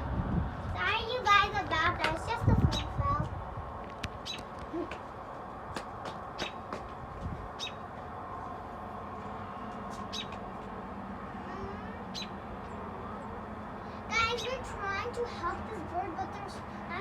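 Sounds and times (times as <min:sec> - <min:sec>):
low background hum: 0:00.0 - 0:17.0
small birds chirping: 0:04.1 - 0:05.0, 0:06.0 - 0:06.8, 0:07.5 - 0:07.9, 0:09.3 - 0:10.5, 0:11.4 - 0:13.5.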